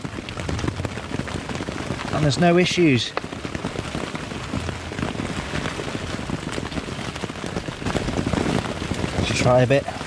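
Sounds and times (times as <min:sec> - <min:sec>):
rain on tent fabric: 0:00.0 - 0:10.0.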